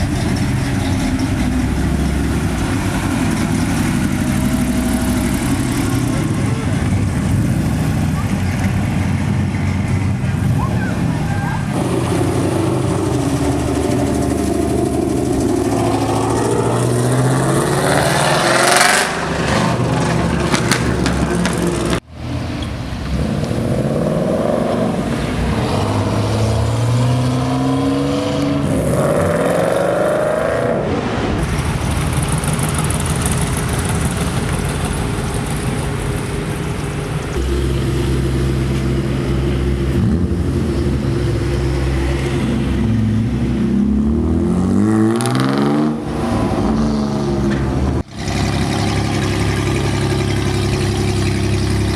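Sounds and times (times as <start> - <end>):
car engines revving away: 0.0 - 51.9
idling exhaust rumble: 48.0 - 51.9.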